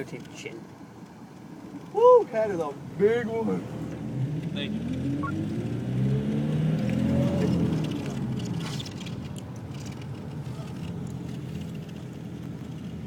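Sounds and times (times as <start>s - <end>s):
road rumble: 0.0s - 13.0s
vehicle engine rising in pitch: 4.1s - 7.9s.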